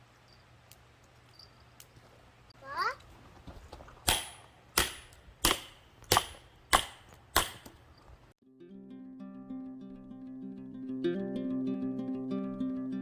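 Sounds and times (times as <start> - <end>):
sharp knocks: 4.0 - 7.8
acoustic guitar music: 8.4 - 13.0.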